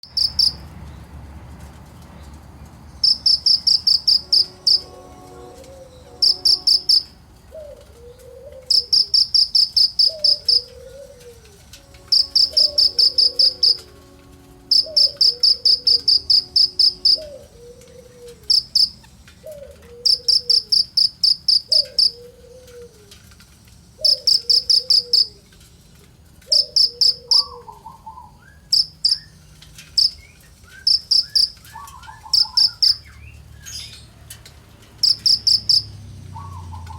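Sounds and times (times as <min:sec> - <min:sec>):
bird chirping trills: 0:00.0 - 0:00.6, 0:02.9 - 0:07.8, 0:08.6 - 0:22.8, 0:26.5 - 0:34.1, 0:35.0 - 0:36.9
lower falling bird call: 0:03.0 - 0:20.7.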